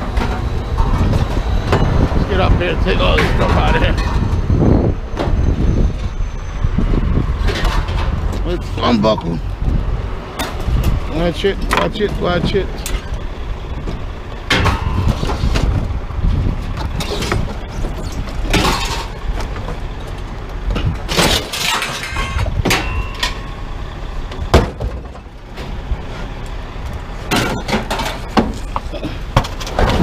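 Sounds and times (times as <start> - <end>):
low rumble: 0.0 - 29.0
scrap metal clanking: 16.8 - 19.8, 20.7 - 23.6, 27.3 - 30.0.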